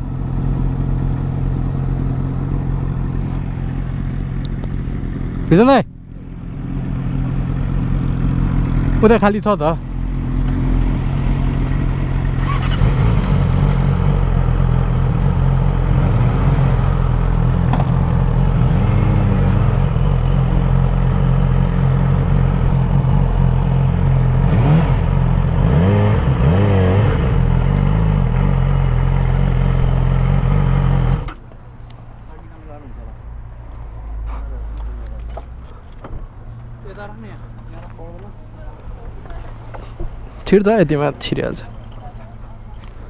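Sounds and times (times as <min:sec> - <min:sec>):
motorcycle engine running: 0:00.0 - 0:32.5.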